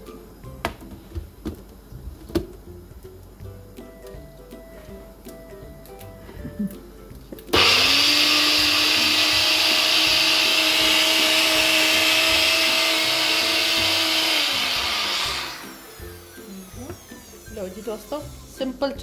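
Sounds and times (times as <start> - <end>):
electric blender motor: 7.5 - 18.7.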